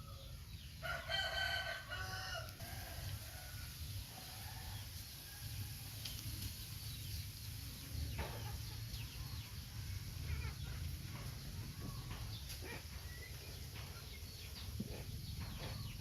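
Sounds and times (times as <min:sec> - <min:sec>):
chickens clucking: 0:06.0 - 0:16.0.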